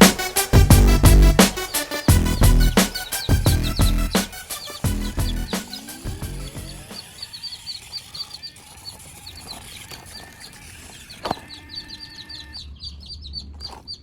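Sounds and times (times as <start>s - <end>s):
small birds chirping: 1.6s - 14.0s.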